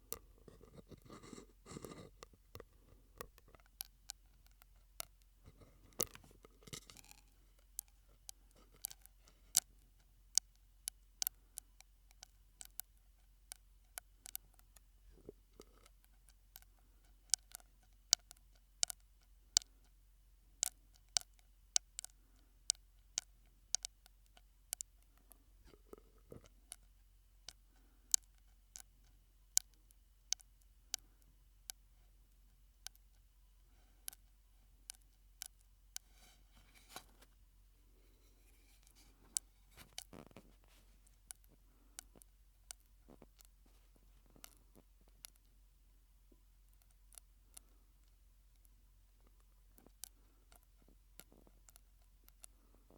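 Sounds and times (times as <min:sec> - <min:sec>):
soft mouth noises: 0:00.0 - 0:03.6
mouth clicks and pops through straw: 0:00.0 - 0:09.7, 0:38.1 - 0:45.5, 0:49.2 - 0:52.9.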